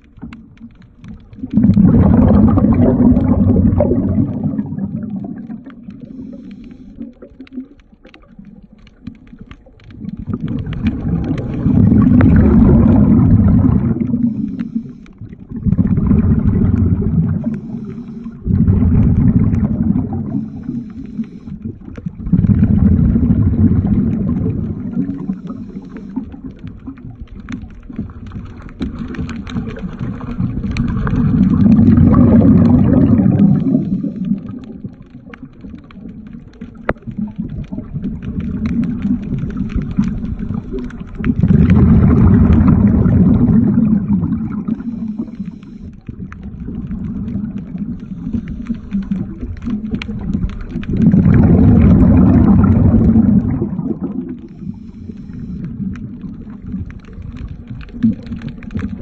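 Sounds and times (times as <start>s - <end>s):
small clicks and taps: 0.0s - 1.8s, 5.6s - 12.4s, 24.1s - 32.0s, 33.4s - 41.5s, 44.7s - 53.2s, 54.4s - 59.0s
underwater breath bubbling: 0.0s - 59.0s.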